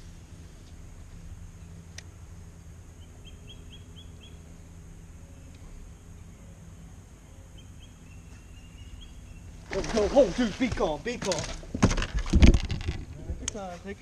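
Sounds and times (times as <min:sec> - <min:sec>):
steady low rumble: 0:00.0 - 0:09.8, 0:10.5 - 0:14.0
bird chirping: 0:02.9 - 0:09.6.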